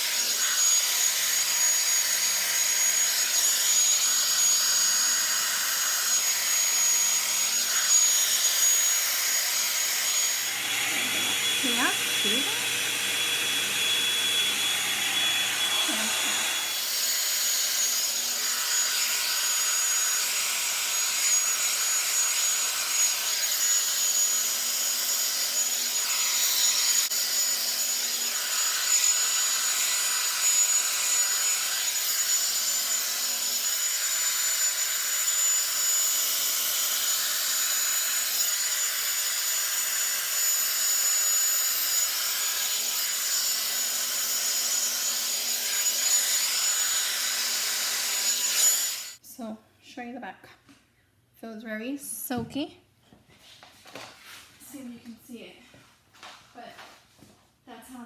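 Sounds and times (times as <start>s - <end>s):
hair dryer brush fan blowing: 10.3s - 16.8s.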